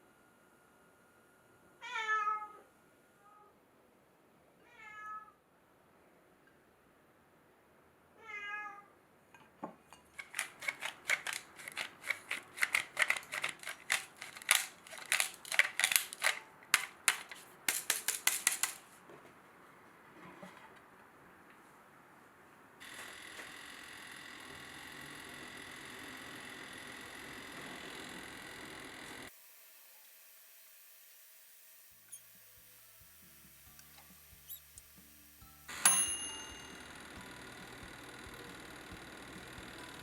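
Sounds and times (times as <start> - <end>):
cat meowing: 4.6 - 5.4, 8.2 - 8.9
crisp clicks: 10.1 - 18.8.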